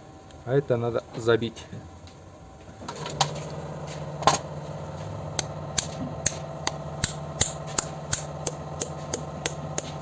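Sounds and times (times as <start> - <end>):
steady low hum: 0.0 - 10.0
hammer tapping: 5.8 - 10.0.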